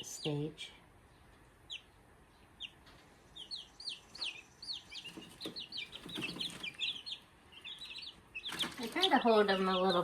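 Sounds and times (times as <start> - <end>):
chicks peeping: 0.0 - 10.0
rustling: 7.8 - 10.0.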